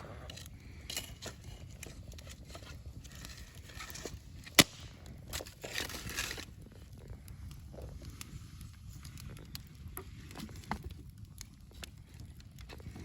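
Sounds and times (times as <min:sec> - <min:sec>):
campfire crackling: 0:00.0 - 0:13.0
loud pop from fire: 0:04.4 - 0:05.1.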